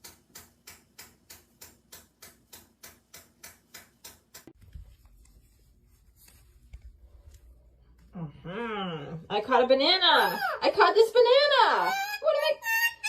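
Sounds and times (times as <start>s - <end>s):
regular sharp ticking: 0.0s - 4.6s.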